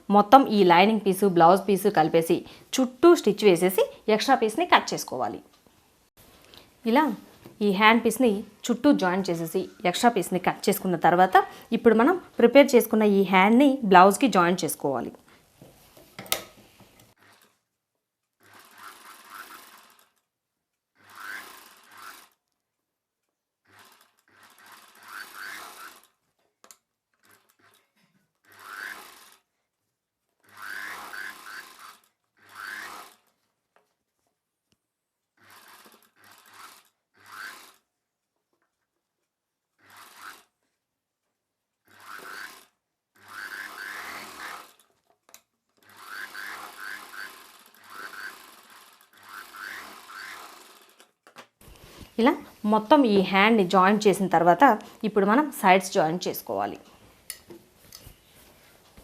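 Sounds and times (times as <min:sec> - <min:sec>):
sewing machine stitching: 0:16.2 - 0:17.7, 0:18.4 - 0:20.3, 0:20.9 - 0:22.4, 0:23.6 - 0:26.3, 0:27.1 - 0:29.5, 0:30.4 - 0:33.4, 0:35.4 - 0:37.9, 0:39.8 - 0:40.6, 0:41.8 - 0:51.2.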